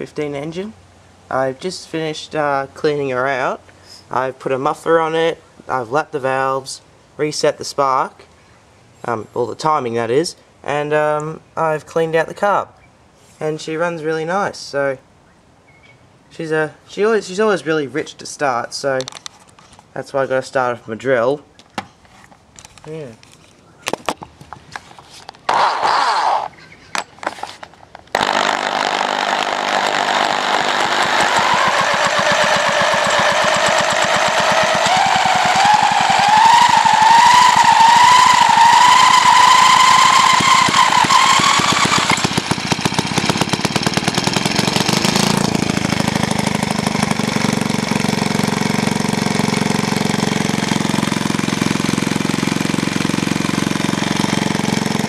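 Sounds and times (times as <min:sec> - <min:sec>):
drill spinning engine over: 0:25.5 - 0:26.5, 0:28.1 - 0:55.0
engine running with rising whine: 0:28.2 - 0:55.0.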